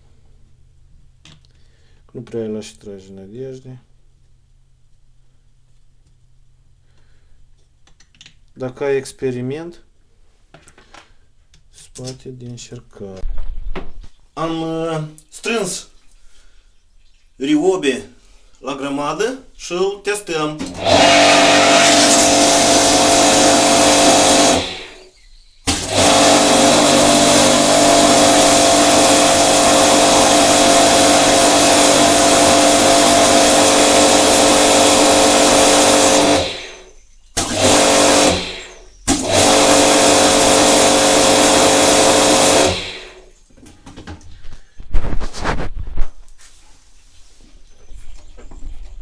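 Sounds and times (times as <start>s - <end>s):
pressure washer motor running: 20.6s - 25.1s, 25.7s - 43.2s.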